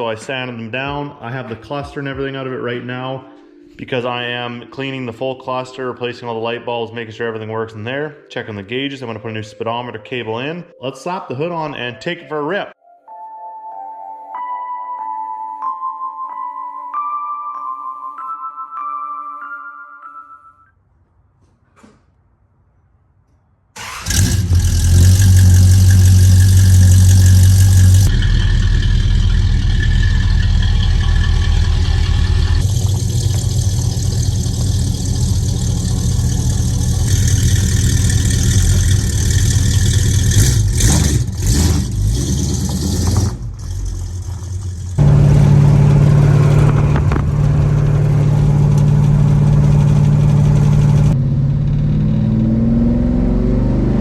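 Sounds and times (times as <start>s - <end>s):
car engine revving: 23.8s - 54.0s.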